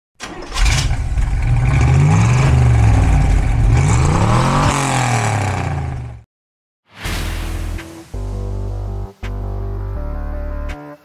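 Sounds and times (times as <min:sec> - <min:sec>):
car engine revving: 0:00.4 - 0:06.2.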